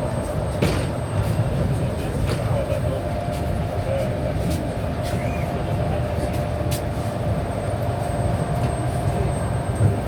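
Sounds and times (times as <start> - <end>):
electric train rumbling: 5.6 - 10.0.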